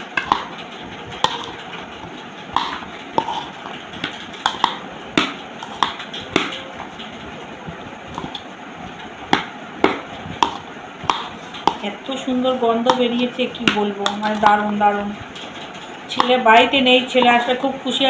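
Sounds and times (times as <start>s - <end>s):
spoon knocking against bowl: 1.2s - 1.6s, 4.4s - 6.7s, 9.3s - 11.8s.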